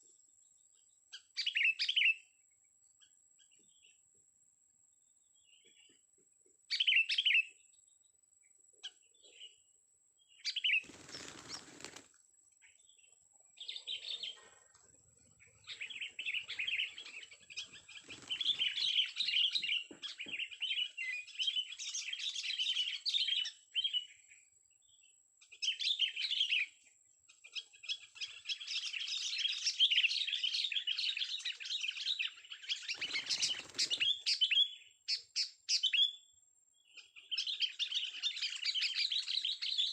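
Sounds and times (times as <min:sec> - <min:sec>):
bird chirping: 0:00.0 - 0:04.2, 0:04.9 - 0:39.9
wings flapping: 0:10.8 - 0:12.2, 0:17.0 - 0:19.2, 0:32.8 - 0:34.2.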